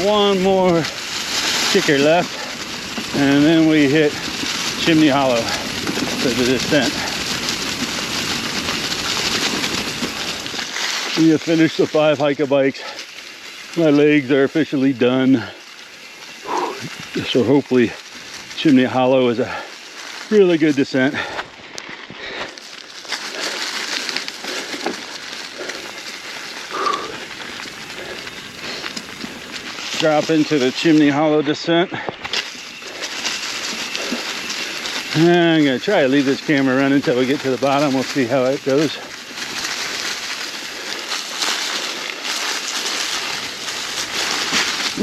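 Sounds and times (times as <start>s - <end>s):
dry leaves crunching: 0.0s - 45.0s
grunt: 16.4s - 16.9s, 26.7s - 27.2s.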